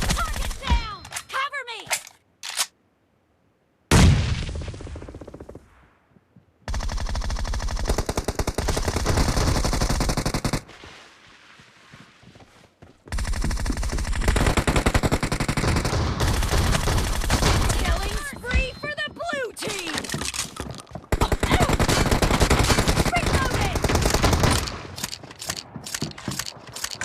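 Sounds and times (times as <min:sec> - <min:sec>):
video game gunshot: 0:03.9 - 0:05.0
automatic gunfire bursts: 0:21.1 - 0:27.0.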